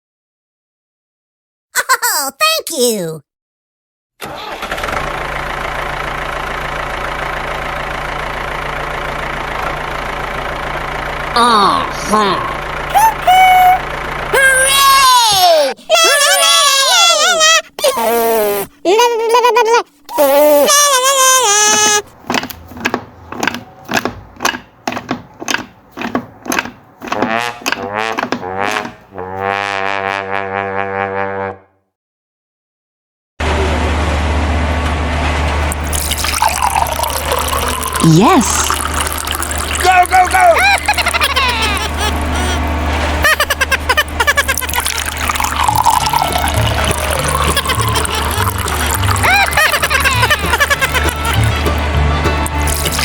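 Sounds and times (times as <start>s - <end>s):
tractor engine idling: 4.2s - 15.9s, 21.7s - 29.8s, 36.9s - 53.0s
brass staccato notes: 27.0s - 31.7s.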